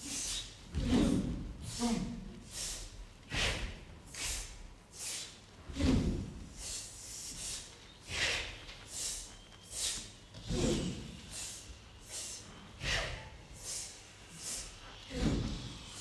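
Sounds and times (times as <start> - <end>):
breathy hisses from voices: 6.5 - 16.0
deep breath sound: 6.6 - 16.0.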